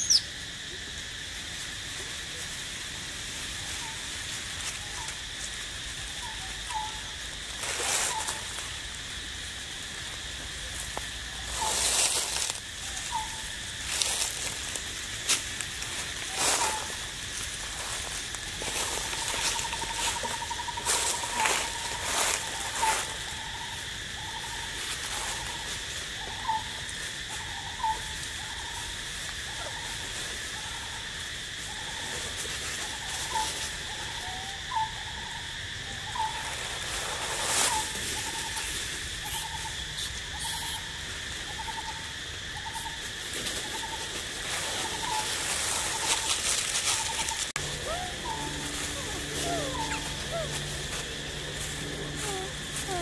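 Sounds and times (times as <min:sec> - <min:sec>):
sharp bird chirps: 0:00.0 - 0:00.3
insect drone: 0:00.0 - 0:53.0
bird hooting: 0:46.9 - 0:53.0.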